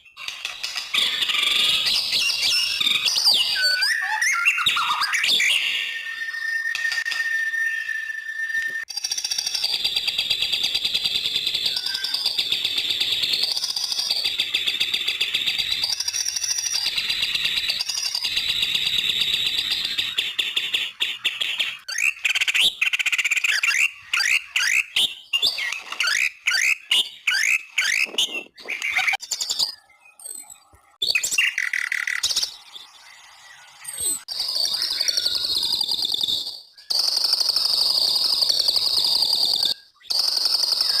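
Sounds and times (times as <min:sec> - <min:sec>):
songbird chattering and whistling: 0:09.5 - 0:41.0.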